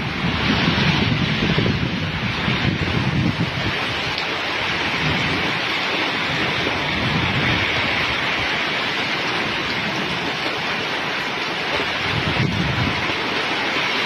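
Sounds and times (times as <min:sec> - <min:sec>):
heavy rain pouring: 0:00.0 - 0:14.0
wind gusts on microphone: 0:00.0 - 0:14.0.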